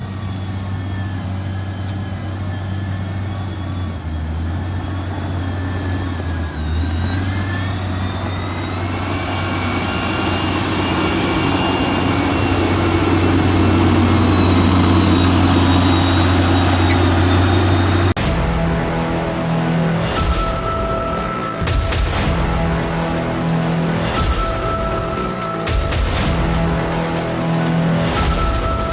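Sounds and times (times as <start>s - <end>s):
faint high whine: 0.0s - 18.2s
diesel engine running: 0.0s - 21.4s.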